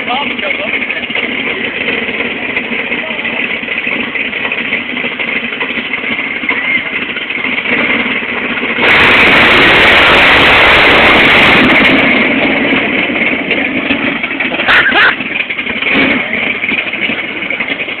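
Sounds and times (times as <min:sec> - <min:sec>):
truck engine at full throttle: 0:00.0 - 0:18.0
brief sharp burst: 0:08.8 - 0:12.6.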